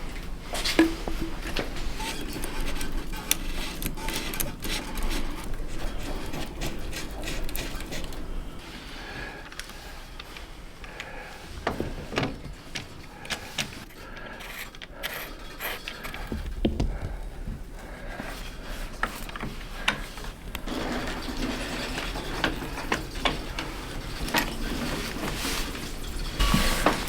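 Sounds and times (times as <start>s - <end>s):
hand tools clicking and clattering: 0.0s - 8.6s, 9.4s - 27.0s
metal knocks: 16.2s - 17.8s.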